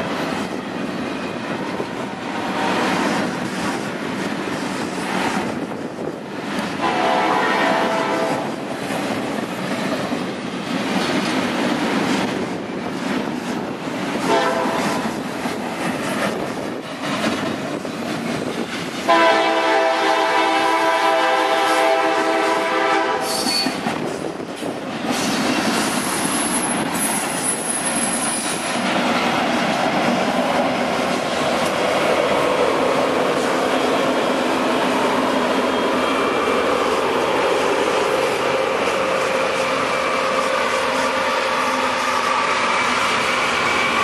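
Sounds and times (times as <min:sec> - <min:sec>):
freight cars rumbling on rails: 0:00.0 - 0:44.0
locomotive air horn: 0:02.4 - 0:02.9, 0:06.8 - 0:08.5, 0:14.3 - 0:15.0, 0:19.1 - 0:23.8
high wheel squeal: 0:23.2 - 0:23.8, 0:26.0 - 0:28.6.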